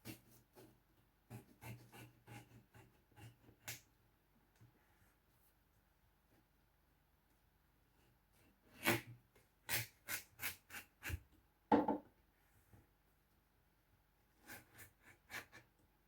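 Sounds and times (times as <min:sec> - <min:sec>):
knife cutting watermelon on board: 0:01.3 - 0:03.8.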